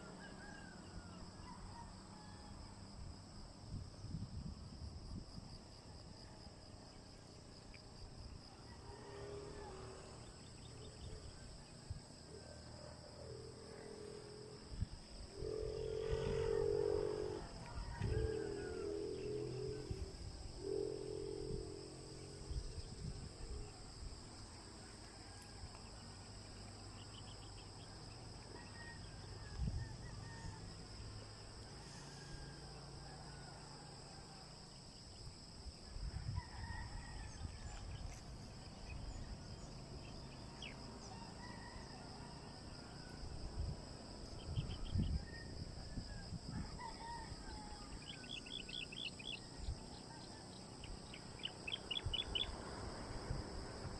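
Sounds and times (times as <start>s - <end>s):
rooster crowing: 8.4s - 10.2s, 15.4s - 22.0s, 28.4s - 31.0s, 31.6s - 34.5s, 36.0s - 37.9s, 40.6s - 43.3s, 44.8s - 52.5s
high-pitched insect drone: 13.2s - 24.2s.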